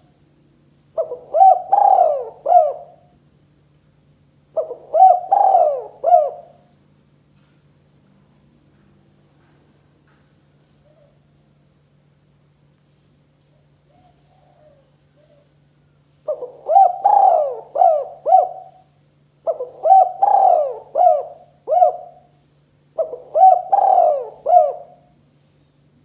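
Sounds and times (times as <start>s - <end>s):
faint low hum: 0.0s - 26.0s
dove cooing: 1.0s - 3.1s, 4.5s - 6.7s, 13.9s - 15.5s, 16.2s - 22.4s, 23.0s - 25.2s.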